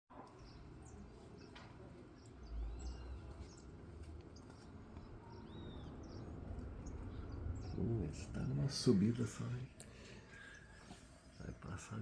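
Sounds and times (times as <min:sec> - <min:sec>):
small birds chirping: 0:00.2 - 0:12.0
low outdoor rumble: 0:02.3 - 0:10.4.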